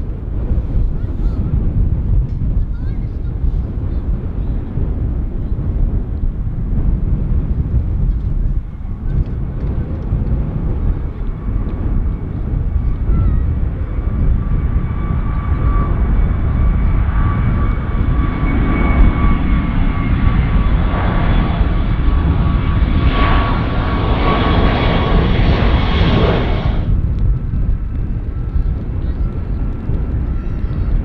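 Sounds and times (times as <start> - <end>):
jet engine rumble: 0.0 - 31.0
high engine whine: 8.1 - 31.0.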